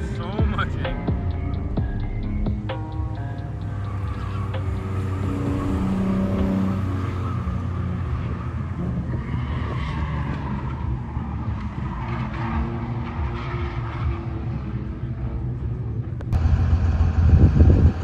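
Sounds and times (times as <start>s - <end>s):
deep engine rumble: 0.0s - 9.4s, 14.7s - 18.0s
car engine revving: 0.0s - 18.0s
tyres skidding: 0.0s - 18.0s.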